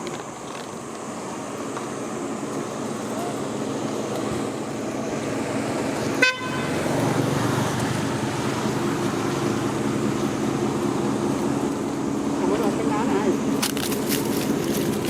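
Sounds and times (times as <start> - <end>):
road traffic: 0.0 - 15.0
vehicle horn toot: 6.2 - 6.9.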